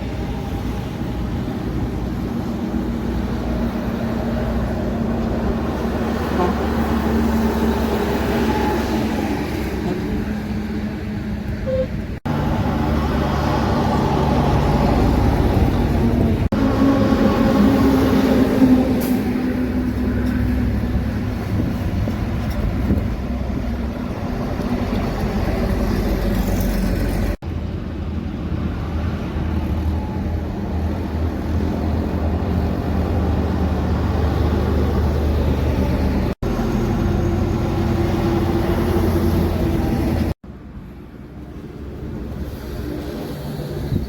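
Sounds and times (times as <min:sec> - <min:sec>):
heavy trucks rumbling past: 0:00.0 - 0:44.0.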